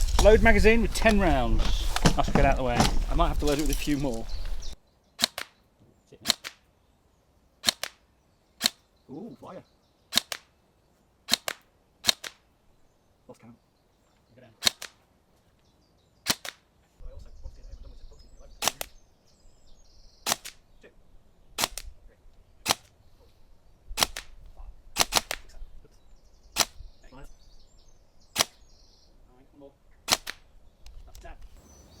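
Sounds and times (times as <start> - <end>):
airsoft rifle firing single shots: 5.2 - 5.6, 7.6 - 8.0, 10.1 - 10.5, 11.3 - 12.4, 14.6 - 15.0, 16.3 - 16.6, 20.2 - 20.6, 21.6 - 21.9, 22.6 - 22.9, 24.0 - 24.4, 25.0 - 25.5, 30.1 - 30.5.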